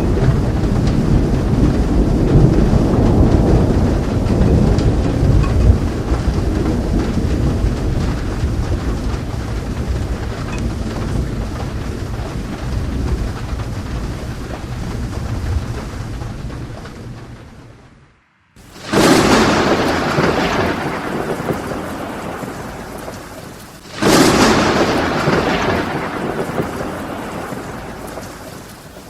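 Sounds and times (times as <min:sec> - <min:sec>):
rumbling thunder: 0:00.0 - 0:29.0
steady rain: 0:00.0 - 0:29.0.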